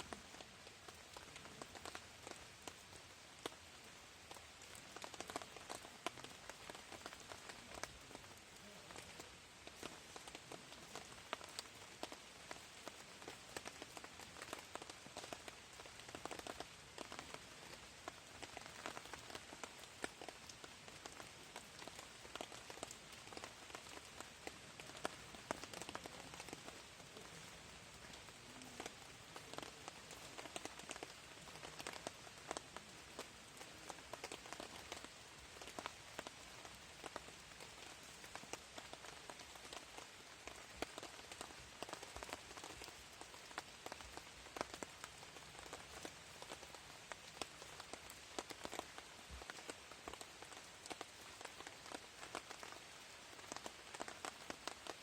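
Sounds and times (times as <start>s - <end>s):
light rain drops ticking: 0.0s - 55.0s.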